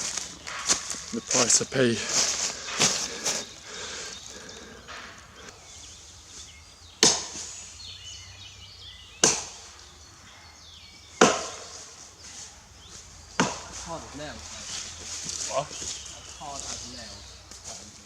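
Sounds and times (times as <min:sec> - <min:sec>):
axe chopping wood: 0:09.2 - 0:09.6, 0:11.2 - 0:11.7, 0:13.4 - 0:13.8.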